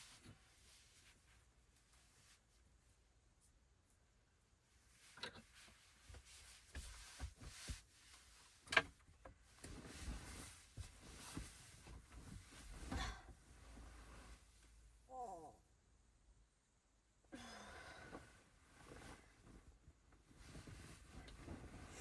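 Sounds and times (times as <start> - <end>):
rustling: 4.8 - 14.9, 18.2 - 22.0.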